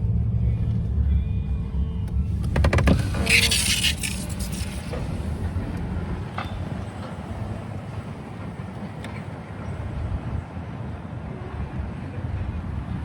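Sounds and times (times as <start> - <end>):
low engine rumble: 0.0 - 13.0
quick run of clicks: 2.1 - 5.1.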